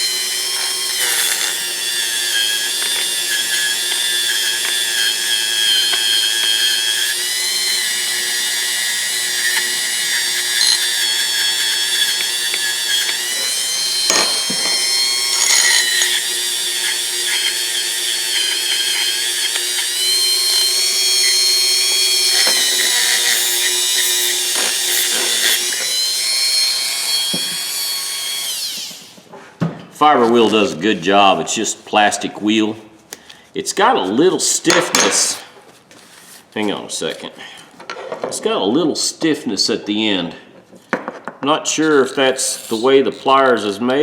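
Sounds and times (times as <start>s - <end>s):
rotary tool whining: 0.0s - 29.2s, 41.8s - 43.7s.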